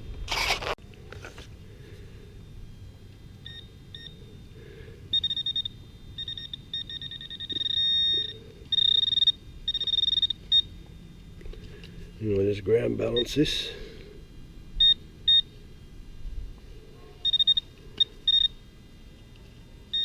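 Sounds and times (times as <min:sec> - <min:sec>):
metal detector electronic tone: 0:02.2 - 0:15.6, 0:17.2 - 0:18.7.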